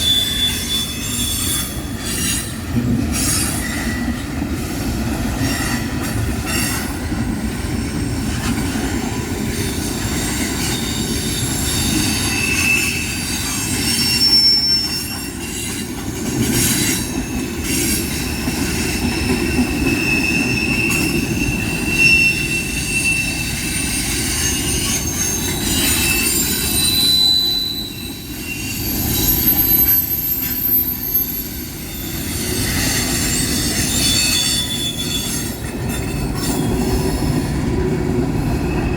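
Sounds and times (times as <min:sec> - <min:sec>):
high wheel squeals: 0:00.0 - 0:02.6, 0:09.5 - 0:37.5
train cars rumbling on rails: 0:00.0 - 0:38.9.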